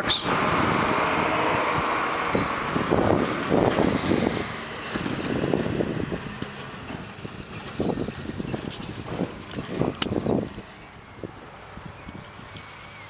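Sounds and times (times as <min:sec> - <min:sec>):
low rumbling: 0:00.0 - 0:13.0
killdeer calls: 0:01.7 - 0:02.6, 0:03.2 - 0:04.0, 0:09.6 - 0:13.0.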